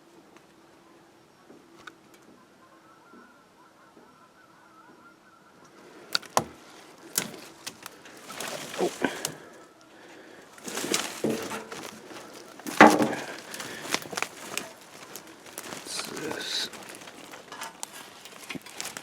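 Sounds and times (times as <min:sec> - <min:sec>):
branches rustling: 0:05.7 - 0:19.0
twigs snapping: 0:05.8 - 0:19.0
footsteps through dry brush: 0:06.1 - 0:19.0.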